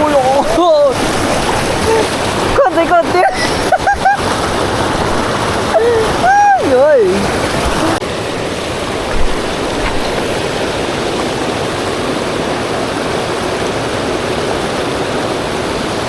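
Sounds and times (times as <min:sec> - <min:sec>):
fast-flowing stream rushing: 0:00.0 - 0:16.0
low thump: 0:09.0 - 0:10.3.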